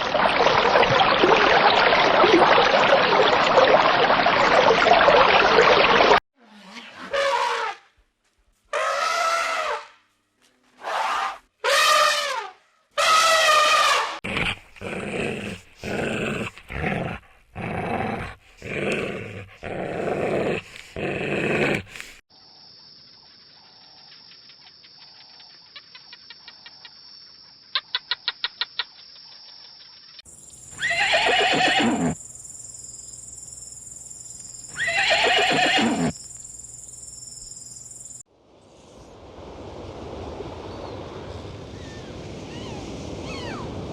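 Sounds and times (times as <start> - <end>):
long animal calls: 30.6 - 32.2, 34.6 - 36.4
short pitched animal cries: 34.7 - 36.1.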